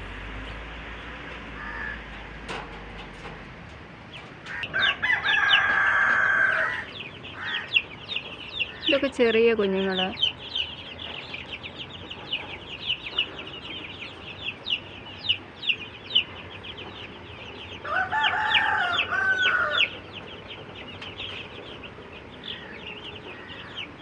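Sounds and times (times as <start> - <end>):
older fowl calling: 1.5 - 2.1, 4.5 - 7.9
chicks peeping: 4.0 - 24.0.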